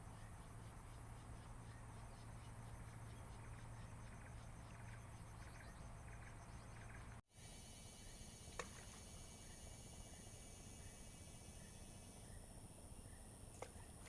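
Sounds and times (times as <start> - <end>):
night insects chirping: 0.0 - 14.0
steady low hum: 0.0 - 14.0.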